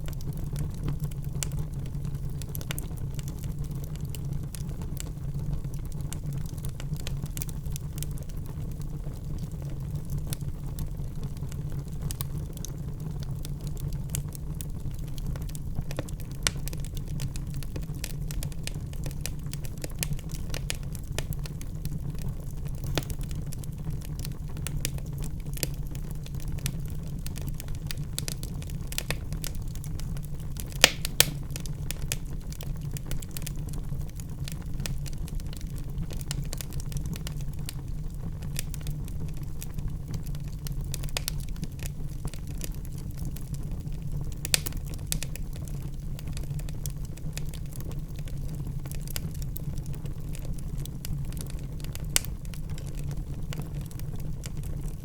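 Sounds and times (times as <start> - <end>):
wood fire crackling: 0.0 - 55.0
loud pop from fire: 30.8 - 32.2.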